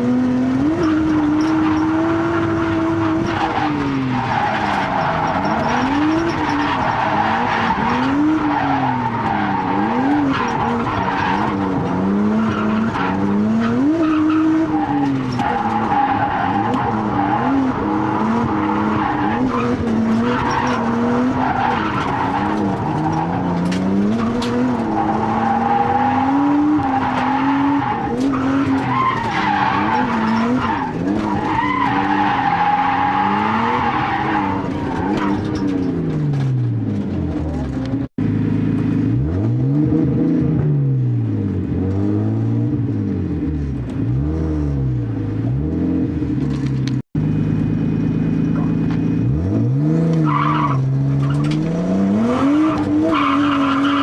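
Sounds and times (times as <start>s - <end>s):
turbocharged engine revving: 0.0s - 46.2s, 47.2s - 54.0s.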